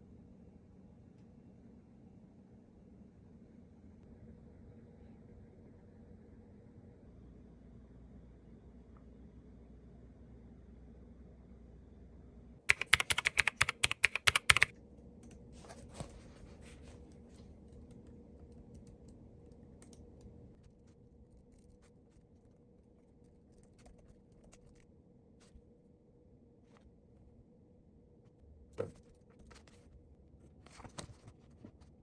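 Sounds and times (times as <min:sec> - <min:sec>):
fast typing on keyboard: 0:12.7 - 0:15.4, 0:17.5 - 0:21.9, 0:23.3 - 0:24.8.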